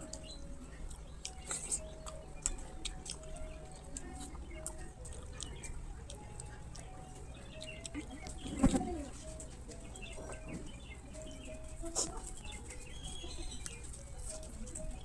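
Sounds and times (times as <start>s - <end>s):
wet chewing and lip smacks: 0.0s - 15.0s.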